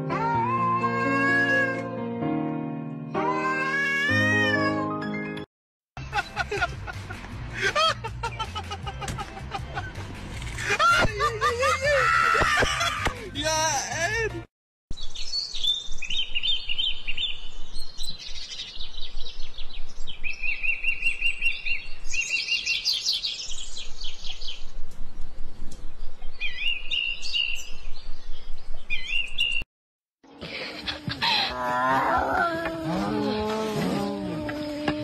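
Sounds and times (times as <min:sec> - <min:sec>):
small birds chirping and trilling: 0:14.9 - 0:29.6.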